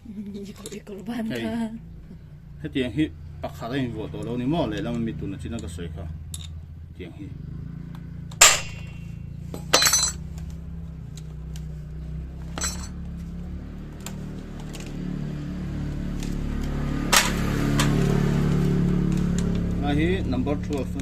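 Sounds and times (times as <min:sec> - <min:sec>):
steady low hum: 0:00.0 - 0:14.5
metal hand tools clinking: 0:08.4 - 0:10.3, 0:12.4 - 0:13.1.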